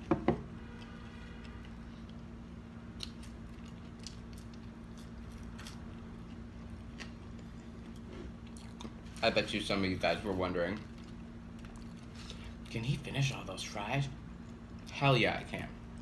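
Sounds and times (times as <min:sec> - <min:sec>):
steady low hum: 0:00.0 - 0:16.0
person chewing fries: 0:00.7 - 0:09.2, 0:10.7 - 0:12.7.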